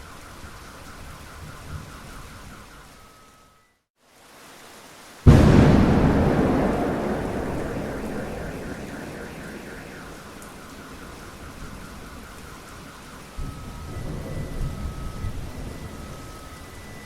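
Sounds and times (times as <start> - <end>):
steady rain: 4.0 - 15.8
thunder rumbling: 5.3 - 12.3.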